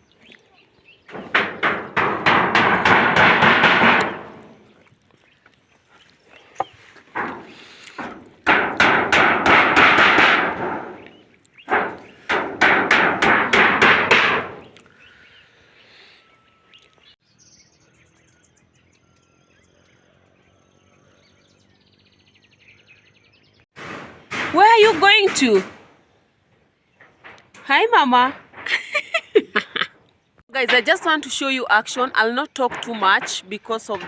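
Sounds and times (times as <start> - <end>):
hammering on metal roofing sheets: 1.1 - 4.7, 6.6 - 14.8, 23.8 - 25.9, 30.6 - 34.0.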